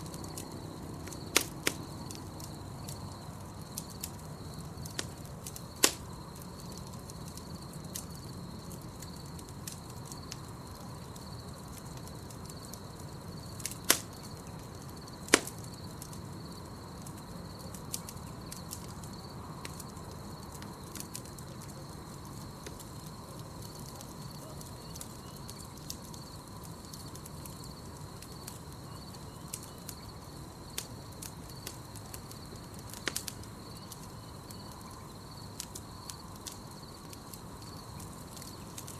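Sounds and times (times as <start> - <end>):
campfire crackling: 0.0 - 38.9
crickets trilling: 0.0 - 38.9
loud sharp pops: 5.8 - 6.0, 15.3 - 15.6.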